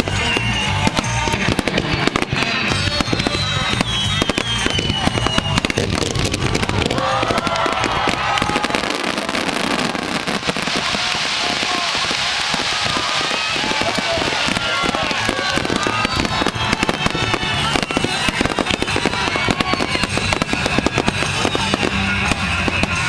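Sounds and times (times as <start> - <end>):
music with a beat: 0.0 - 8.2, 13.9 - 23.0
fireworks bursting and crackling: 0.0 - 23.0
hissing crackle: 0.0 - 23.0.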